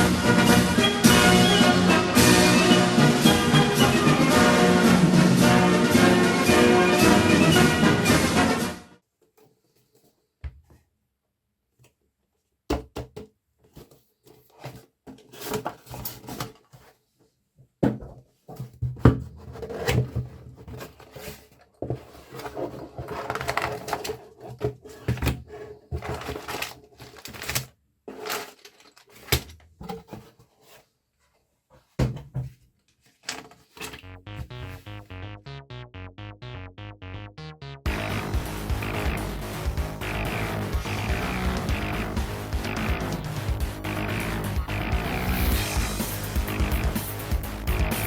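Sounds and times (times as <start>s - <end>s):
plastic bricks rattling and clicking: 22.5s - 30.2s.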